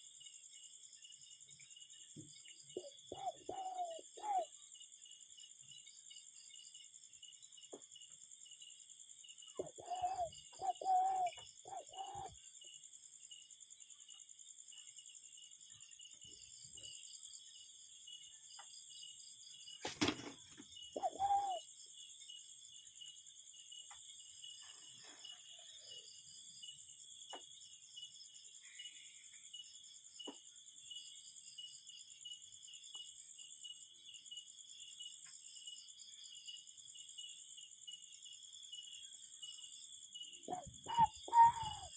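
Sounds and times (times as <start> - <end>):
cuckoo calling: 2.8 - 4.5, 9.6 - 12.4, 20.9 - 21.6, 40.5 - 41.9.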